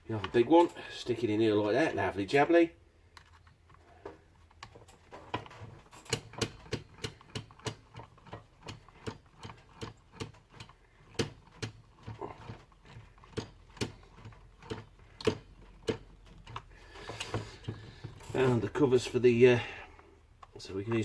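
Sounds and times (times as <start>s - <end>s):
small metal parts clicking: 4.5s - 17.3s.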